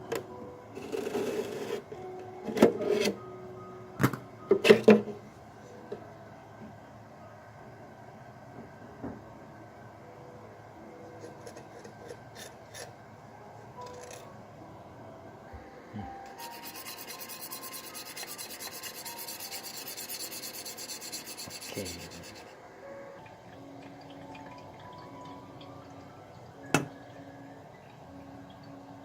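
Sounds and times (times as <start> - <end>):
faint background music: 0.0 - 29.0
rhythmic scrubbing: 16.0 - 22.6.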